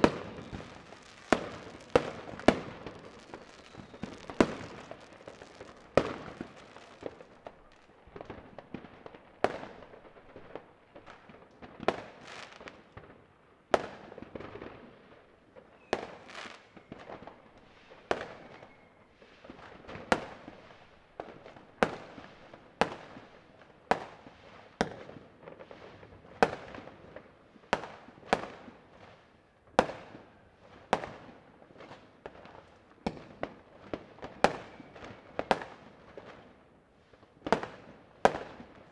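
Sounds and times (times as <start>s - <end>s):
firework bangs echoing: 0.0s - 8.9s
distant fireworks crackling: 0.0s - 13.2s, 13.8s - 38.9s.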